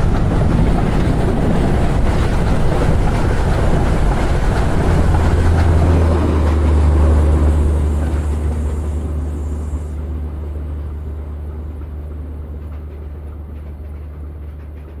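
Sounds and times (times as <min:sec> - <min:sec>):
low rumble: 0:00.0 - 0:11.8.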